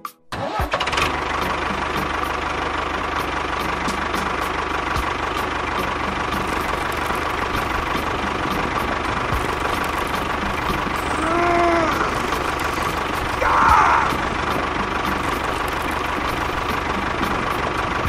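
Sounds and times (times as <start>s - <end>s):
small toy motor humming and whining: 9.3s - 17.4s.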